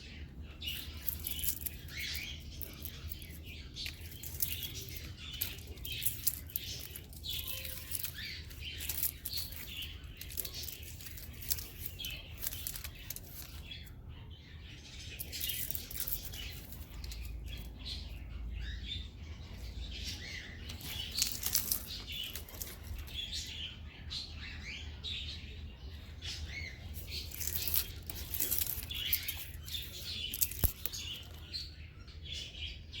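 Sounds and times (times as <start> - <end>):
small birds chirping: 0.0 - 33.0
rustling fluttering: 0.6 - 13.8, 15.2 - 17.7, 20.7 - 23.5, 26.9 - 31.5.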